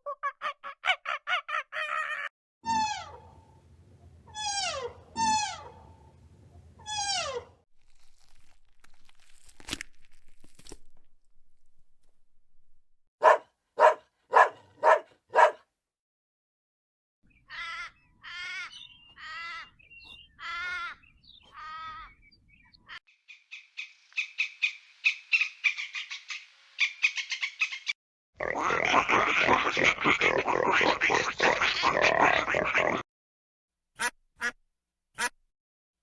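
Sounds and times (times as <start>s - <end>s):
longer wavering animal calls: 2.7s - 6.2s, 6.8s - 7.5s.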